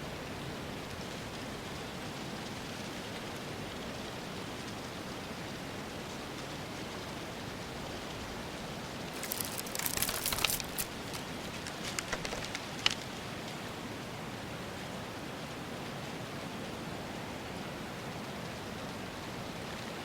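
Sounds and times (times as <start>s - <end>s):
sharp crackling clicks: 9.1s - 13.2s.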